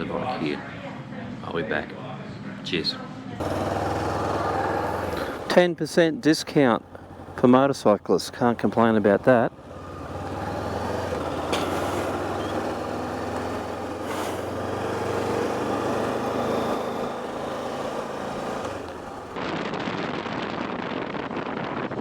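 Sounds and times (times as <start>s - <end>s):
motorcycle engine at low revs: 3.4s - 21.6s
wind rushing on microphone: 19.3s - 22.0s.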